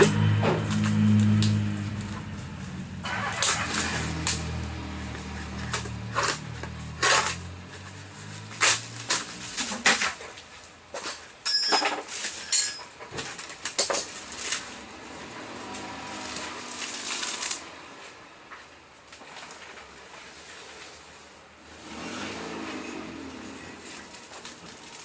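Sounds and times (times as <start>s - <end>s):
low engine-like hum: 0.0s - 9.6s
metal tools clinking: 11.4s - 13.1s.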